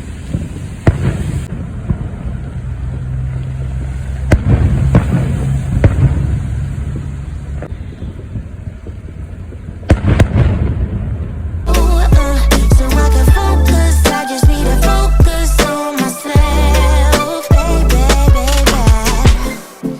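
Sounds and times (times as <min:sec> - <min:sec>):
fireworks bangs: 0:00.0 - 0:14.3
steady low rumble: 0:00.0 - 0:15.6.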